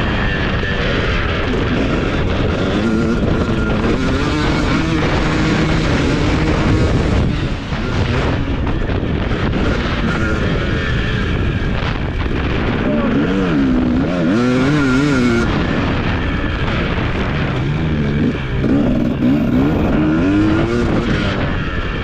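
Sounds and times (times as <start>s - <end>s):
motocross bike engine revving: 0.0s - 22.0s.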